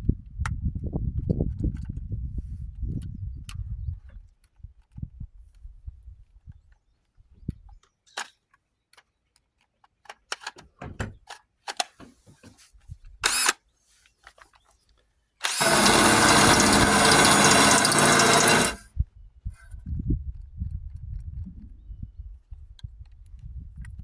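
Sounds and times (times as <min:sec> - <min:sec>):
handheld power tool running: 0:13.3 - 0:13.5, 0:15.4 - 0:18.8.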